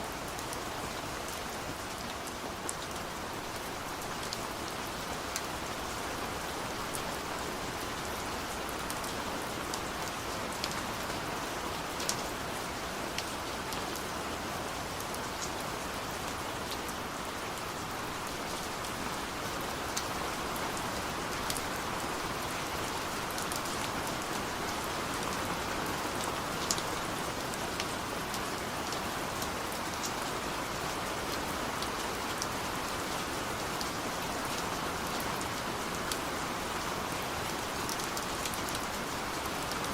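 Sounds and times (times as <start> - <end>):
steady rain falling: 0.0 - 39.9
raindrops ticking on a surface: 0.3 - 14.1, 17.6 - 39.9.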